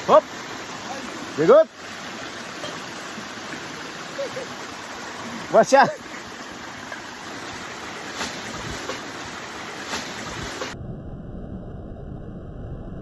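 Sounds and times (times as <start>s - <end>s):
running stream water: 0.0s - 10.8s.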